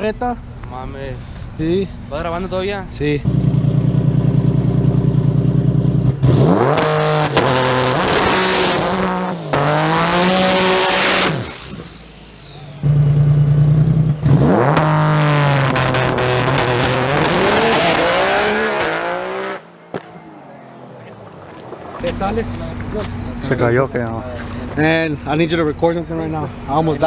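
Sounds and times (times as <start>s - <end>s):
race truck engine idling: 3.3s - 16.3s, 22.0s - 27.0s
race truck engine accelerating: 3.3s - 19.8s, 22.0s - 27.0s.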